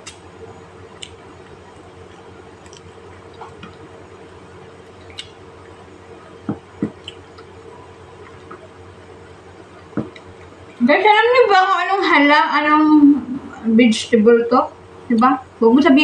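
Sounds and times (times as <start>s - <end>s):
steady low hum: 0.0s - 16.0s
chewing clicks and smacks: 0.9s - 3.9s, 4.8s - 5.8s, 6.9s - 7.6s, 9.7s - 10.6s.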